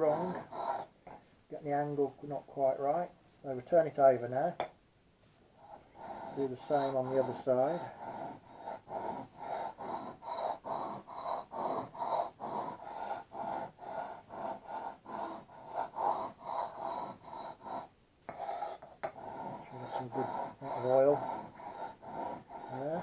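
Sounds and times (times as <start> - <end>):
steel scraping on stone: 5.7 - 8.3, 16.8 - 23.0.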